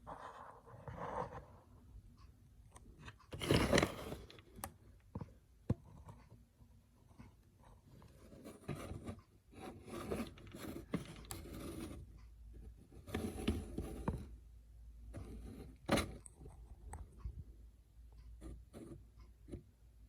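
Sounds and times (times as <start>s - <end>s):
scraping and rustling of objects: 8.0s - 12.1s.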